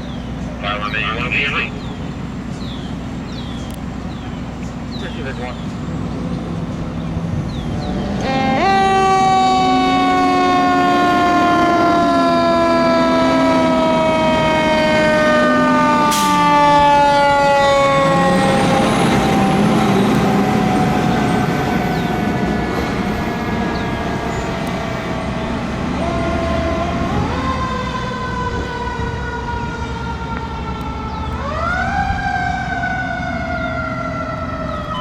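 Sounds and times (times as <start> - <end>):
lower wavering siren: 6.4 - 35.0
loud falling siren tone: 7.4 - 35.0.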